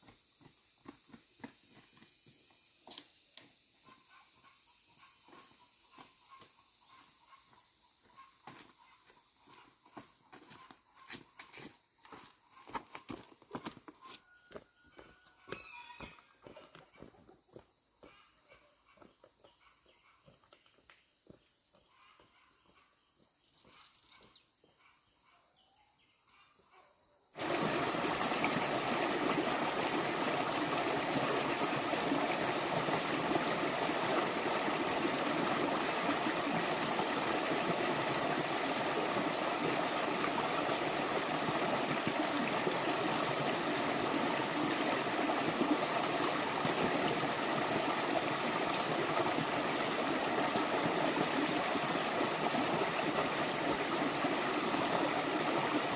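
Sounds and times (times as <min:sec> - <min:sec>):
stream water running: 0:27.4 - 0:55.9.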